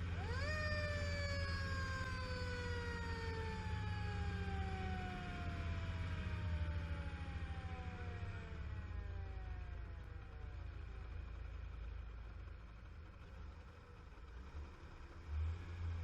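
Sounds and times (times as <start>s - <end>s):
fire engine siren winding down: 0.0s - 10.1s
fire engine engine rumble: 0.0s - 15.3s.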